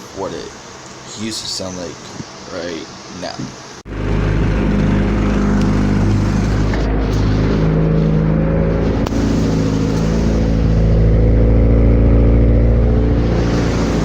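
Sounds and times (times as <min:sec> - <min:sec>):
car engine exhaust note: 0:03.9 - 0:14.0.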